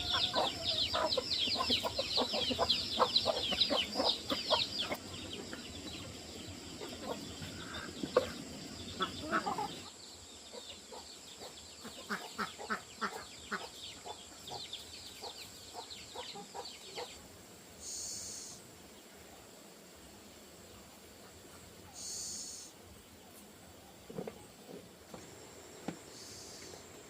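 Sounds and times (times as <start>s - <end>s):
chickens clucking: 0.0s - 17.2s
chicks peeping: 0.0s - 17.2s.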